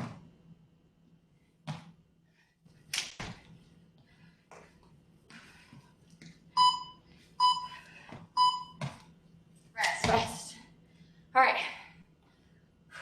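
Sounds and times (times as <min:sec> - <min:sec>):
feet thumping and sliding on floor: 0:01.6 - 0:02.0.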